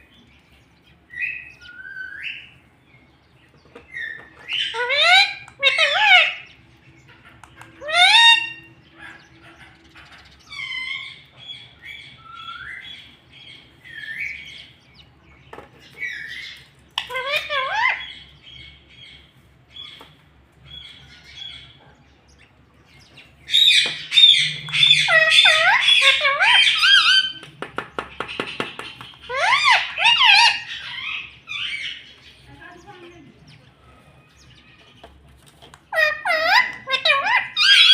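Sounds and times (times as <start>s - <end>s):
parakeet chirping and squawking: 3.6s - 14.8s, 15.8s - 21.9s, 22.5s - 33.2s, 35.8s - 37.9s.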